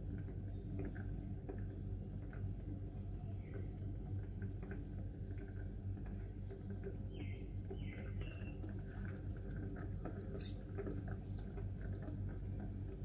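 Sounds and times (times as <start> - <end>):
steady low hum: 0.0 - 13.0
sparrows chirping: 7.1 - 12.5.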